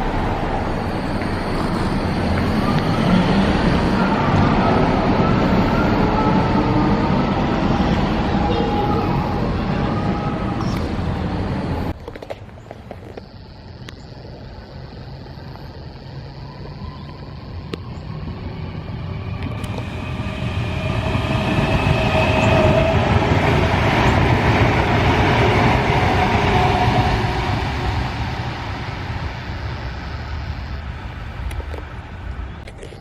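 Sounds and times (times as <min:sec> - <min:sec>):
train rumbling past: 0:00.0 - 0:12.0, 0:15.8 - 0:32.6
whining tone: 0:00.0 - 0:12.0.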